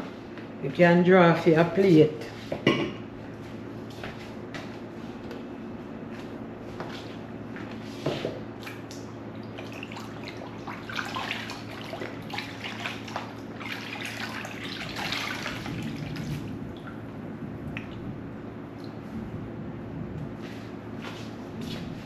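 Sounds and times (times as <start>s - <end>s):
steady low hum: 0.0s - 22.0s
wet dripping sounds: 8.6s - 19.1s.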